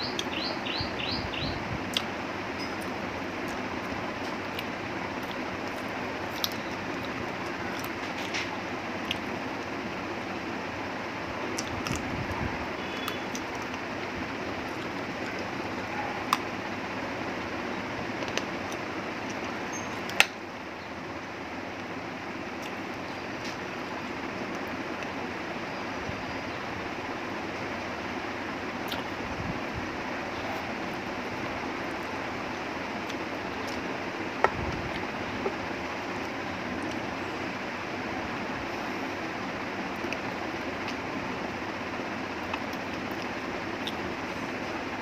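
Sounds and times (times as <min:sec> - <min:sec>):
person chewing: 0:04.5 - 0:08.0.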